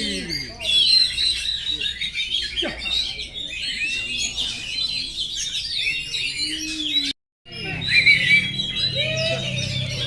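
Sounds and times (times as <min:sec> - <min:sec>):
bird chirping and whistling: 0:03.4 - 0:10.0.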